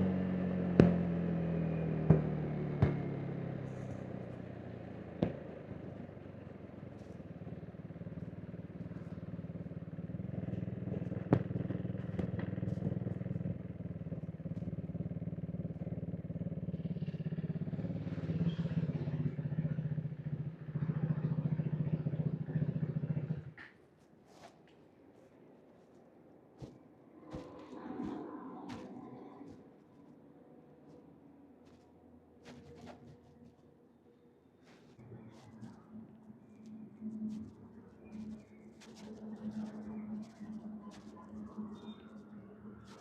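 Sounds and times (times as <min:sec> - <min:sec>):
motorcycle engine running: 0:00.0 - 0:23.7.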